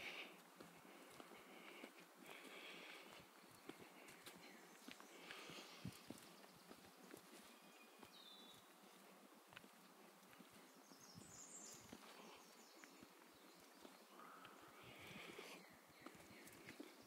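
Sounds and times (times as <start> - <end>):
footsteps on a trail: 0.0 - 17.0
faint bird chirps: 3.0 - 9.1, 10.4 - 17.0.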